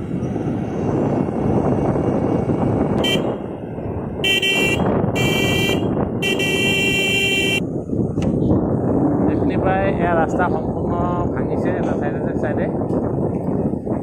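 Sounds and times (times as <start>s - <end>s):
moving vehicle engine and road noise: 0.0s - 14.0s
vehicle horn honking: 3.0s - 3.4s, 4.2s - 7.6s.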